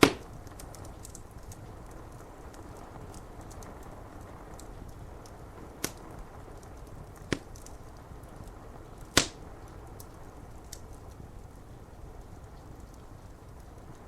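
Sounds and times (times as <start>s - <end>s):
rain hissing: 0.0s - 3.1s, 4.0s - 12.5s
raindrops ticking on window glass: 0.0s - 14.0s
wood fire crackling: 0.0s - 14.0s.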